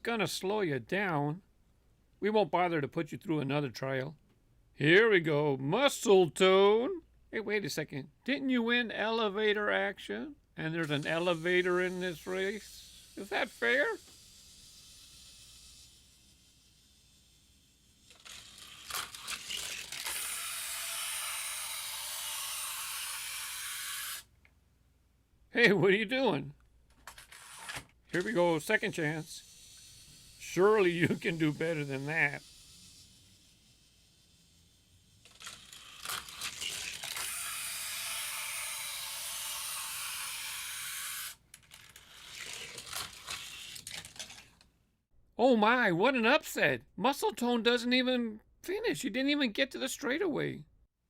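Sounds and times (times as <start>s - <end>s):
toy car rolling on plastic track: 10.7s - 24.3s, 26.9s - 44.7s.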